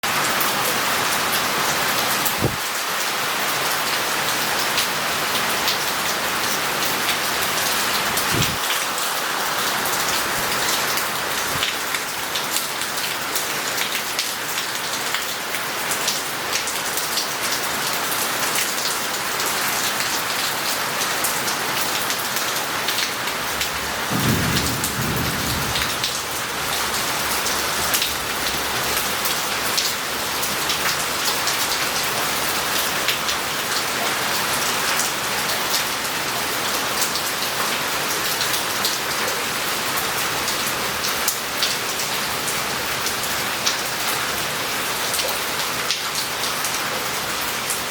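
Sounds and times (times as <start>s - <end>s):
heavy rain on street and roof: 0.0s - 47.9s
low rumble of thunder: 8.2s - 8.6s, 23.6s - 28.7s.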